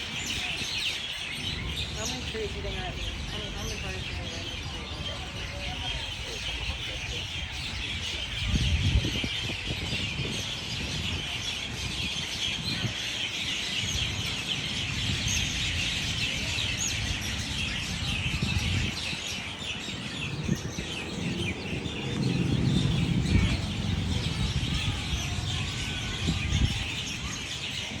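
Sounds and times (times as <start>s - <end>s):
flock of birds chirping: 0.0s - 28.0s
low rumble: 1.4s - 9.3s, 20.3s - 26.8s.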